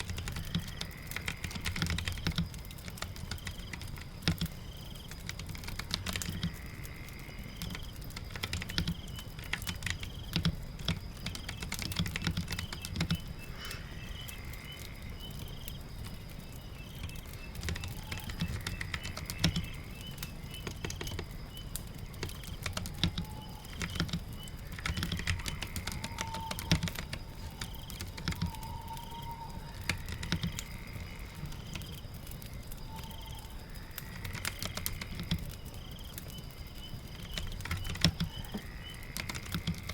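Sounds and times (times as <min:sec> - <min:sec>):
rain: 0:00.0 - 0:39.9.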